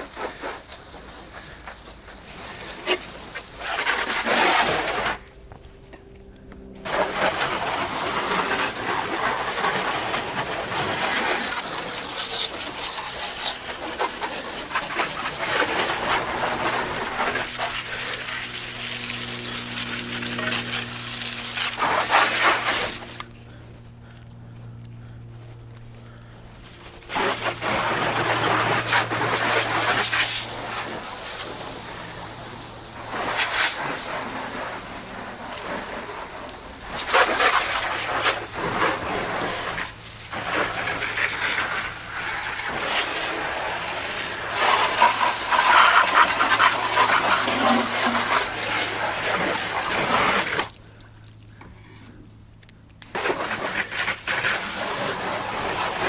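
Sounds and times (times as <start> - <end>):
water spraying: 0.0 - 5.3, 6.8 - 23.5, 27.0 - 51.6, 52.9 - 56.0
steady low hum: 4.6 - 33.1.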